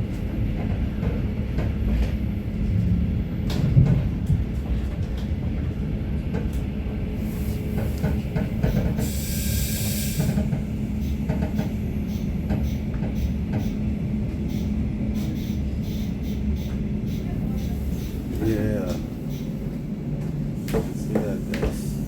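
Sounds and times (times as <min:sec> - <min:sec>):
train rumbling inside carriage: 0:00.0 - 0:22.0
rail clicks: 0:03.4 - 0:06.8, 0:07.7 - 0:09.2, 0:09.9 - 0:13.9, 0:16.2 - 0:22.0.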